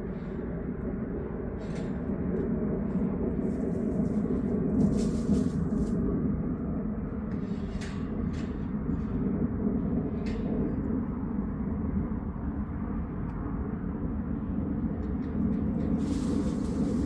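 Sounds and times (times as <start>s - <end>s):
farm machine engine rumbling: 16.0s - 17.0s.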